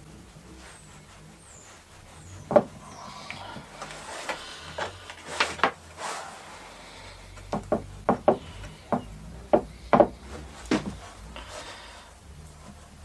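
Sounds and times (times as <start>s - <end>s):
faint rubbing: 0.0s - 13.0s
sharp knocks and taps: 2.5s - 2.8s, 7.4s - 11.0s
hard wooden objects set down: 4.8s - 5.8s, 9.6s - 11.0s.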